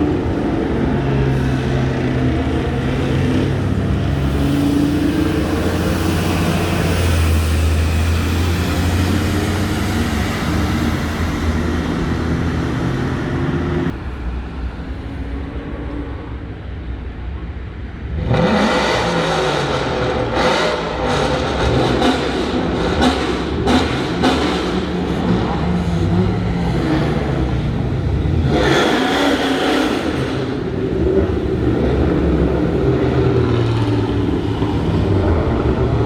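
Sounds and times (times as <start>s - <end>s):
engine drone: 0.0s - 36.0s
engine revving loudly: 18.2s - 36.0s.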